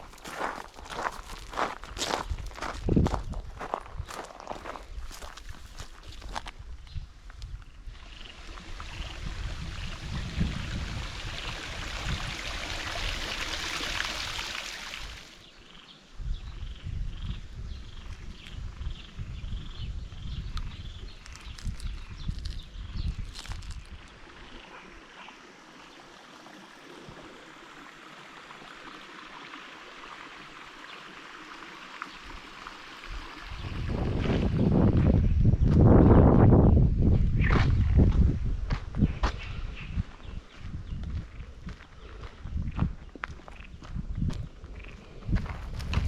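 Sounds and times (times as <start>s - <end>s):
stream water flowing: 7.8s - 15.5s, 23.9s - 34.6s.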